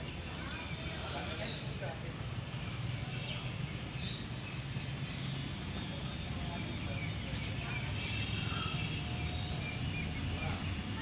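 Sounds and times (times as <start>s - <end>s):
birds chirping: 2.4s - 11.0s.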